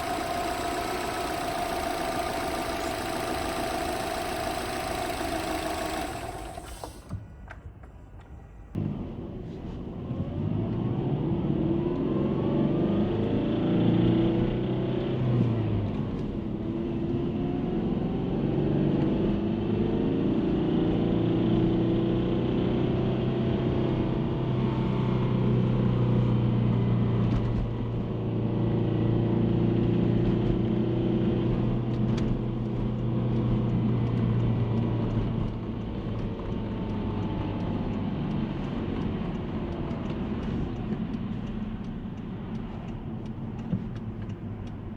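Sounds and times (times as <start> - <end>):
car engine revving: 0.0 - 7.0
rattle from engine bay: 0.0 - 7.2.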